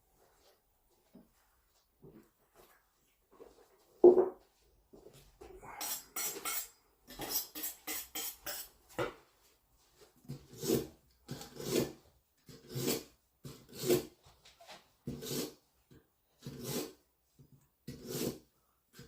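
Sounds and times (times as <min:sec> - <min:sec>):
knife drawn through sharpener: 0:05.8 - 0:08.7.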